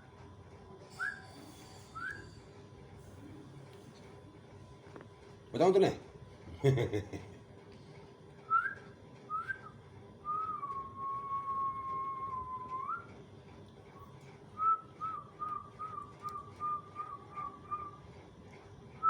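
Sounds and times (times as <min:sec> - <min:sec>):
person whistling: 0:00.9 - 0:02.4, 0:08.5 - 0:13.1, 0:14.6 - 0:18.0.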